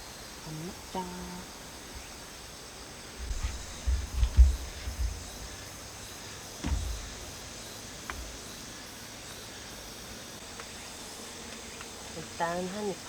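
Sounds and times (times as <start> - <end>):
insects chirring: 0.0 - 13.0
low dull thumps: 3.2 - 5.8, 6.6 - 8.4.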